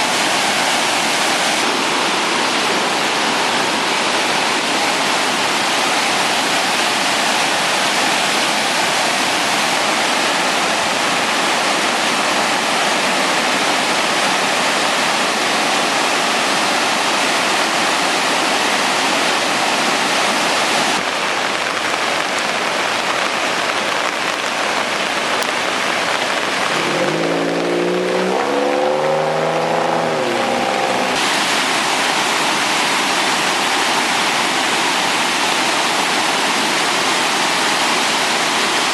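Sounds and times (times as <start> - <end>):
floodwater rushing: 0.0 - 38.9
wavering pitched tone: 26.8 - 31.2.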